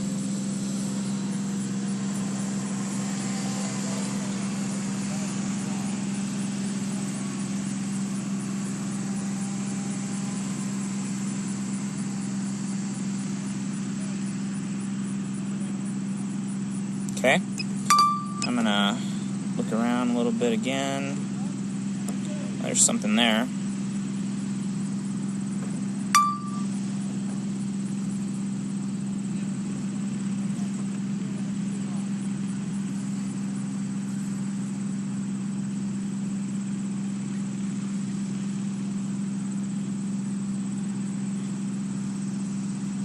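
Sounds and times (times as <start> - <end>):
hiss: 0.0 - 15.9
low machine hum: 15.3 - 43.0
short electronic beep: 17.6 - 18.6, 26.2 - 26.7
steady low hum: 24.4 - 30.7.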